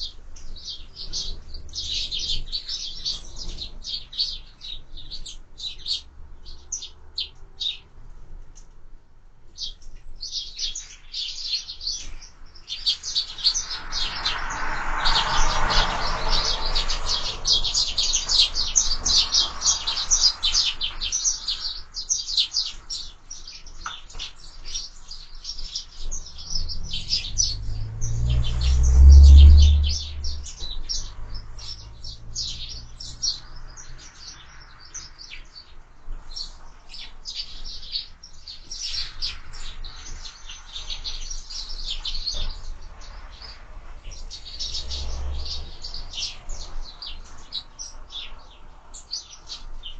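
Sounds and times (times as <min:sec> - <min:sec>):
sparrows chirping: 0:00.0 - 0:49.9
loud low rumble: 0:26.1 - 0:32.8.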